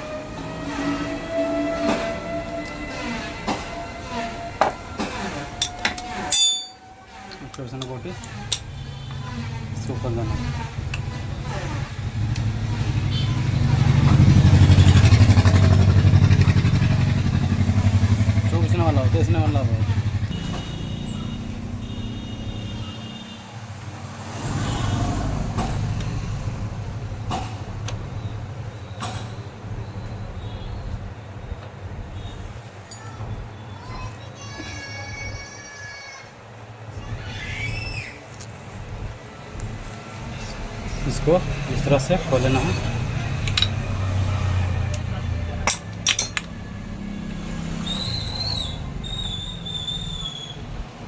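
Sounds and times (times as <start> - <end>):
metal tools clinking: 5.6 - 7.8, 42.5 - 44.3, 44.9 - 46.6
vehicle engine hum: 7.1 - 33.6, 38.4 - 51.0
tools clicking on metal: 43.2 - 44.2, 44.9 - 46.6
thin wavering whistle: 47.8 - 50.7.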